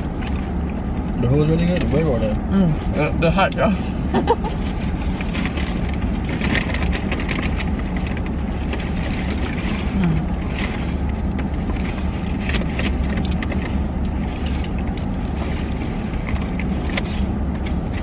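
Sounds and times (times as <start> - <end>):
car cabin rumble: 0.0 - 18.0
small clicks and rustles: 4.6 - 18.0.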